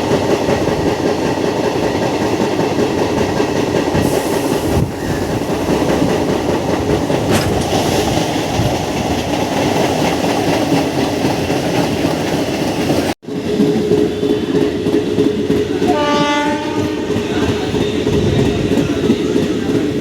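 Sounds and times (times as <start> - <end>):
train wheels rumbling: 0.0 - 20.0
wheels clacking over rail joints: 0.0 - 20.0
train horn: 15.8 - 17.8.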